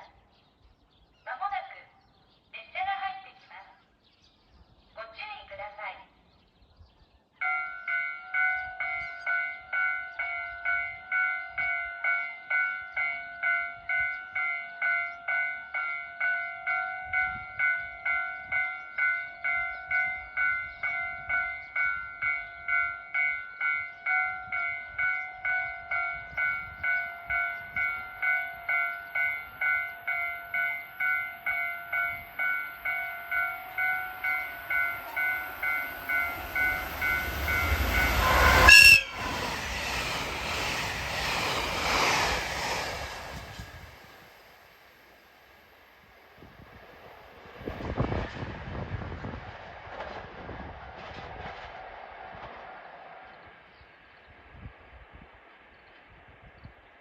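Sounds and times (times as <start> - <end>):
level-crossing electronic bell: 7.4 - 39.3
passing train rush: 7.4 - 57.0.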